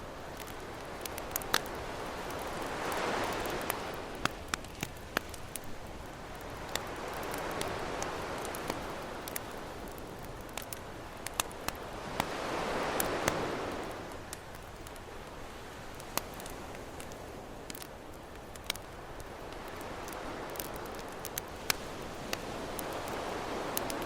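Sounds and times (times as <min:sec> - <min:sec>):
campfire crackling and popping: 0:00.0 - 0:24.0
ocean waves washing in: 0:11.8 - 0:14.3.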